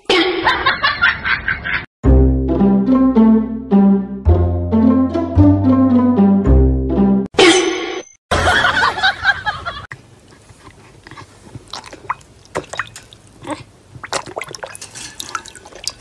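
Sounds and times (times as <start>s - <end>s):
water dripping: 11.6s - 16.0s.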